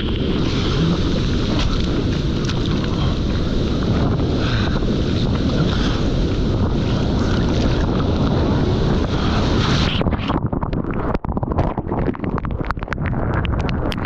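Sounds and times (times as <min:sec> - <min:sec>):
surf rushing: 0:00.0 - 0:10.4
wind buffeting microphone: 0:00.0 - 0:14.0.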